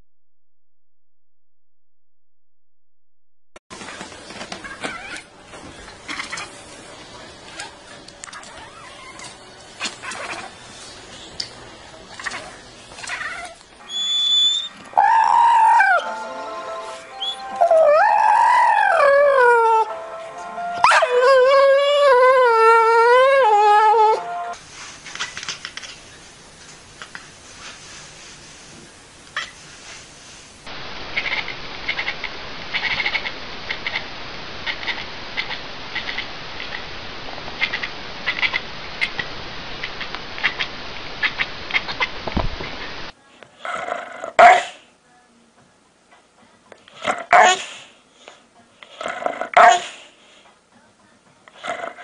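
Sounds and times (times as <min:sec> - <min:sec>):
small animal squeaking: 0:13.1 - 0:15.3
dog howling: 0:13.3 - 0:16.1, 0:17.5 - 0:19.9, 0:20.8 - 0:24.3.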